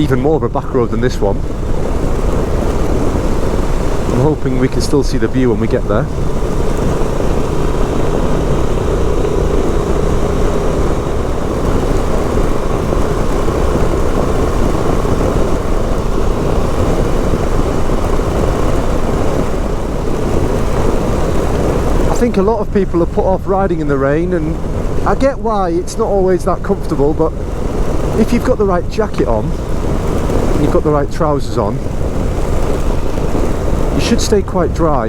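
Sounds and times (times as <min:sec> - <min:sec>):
motorcycle engine running: 0:00.0 - 0:35.0
wind rushing over microphone: 0:00.0 - 0:35.0.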